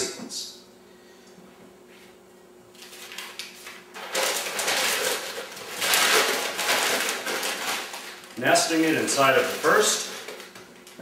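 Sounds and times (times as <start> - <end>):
packing paper rustling and crinkling: 2.8 - 11.0.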